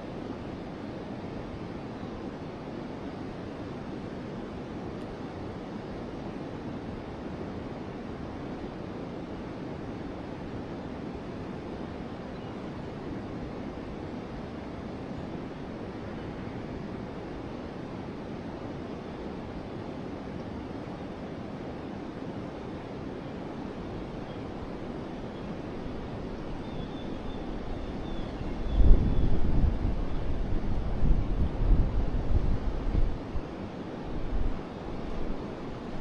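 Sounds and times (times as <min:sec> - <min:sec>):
river flowing: 0:12.8 - 0:28.0, 0:31.6 - 0:36.0.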